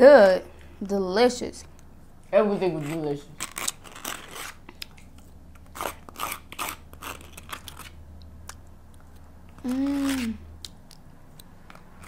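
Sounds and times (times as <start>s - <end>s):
crunchy bites and chewing: 3.4s - 12.0s.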